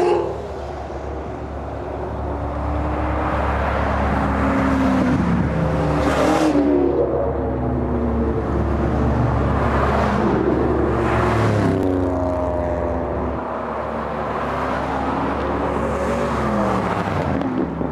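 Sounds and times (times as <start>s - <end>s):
car engines revving: 0.0s - 17.9s.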